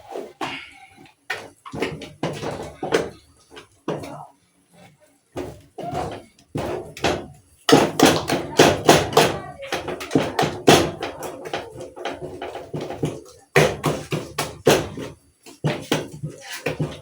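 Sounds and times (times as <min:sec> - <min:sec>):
masher knocking a metal pot: 0:05.4 - 0:17.0.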